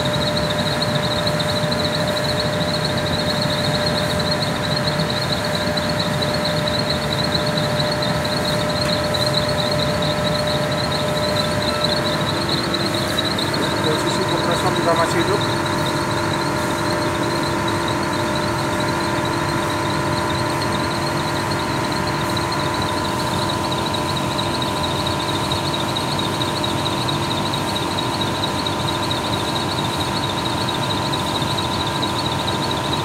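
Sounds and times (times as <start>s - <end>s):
air conditioner running: 0.0s - 33.0s.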